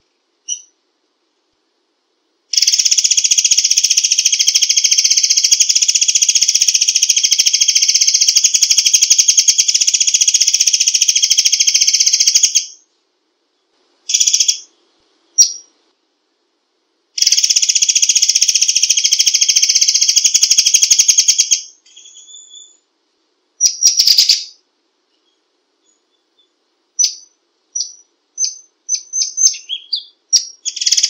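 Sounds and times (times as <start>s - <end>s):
bird trilling: 15.4s - 15.7s, 17.2s - 22.8s, 23.6s - 24.6s, 25.2s - 31.0s.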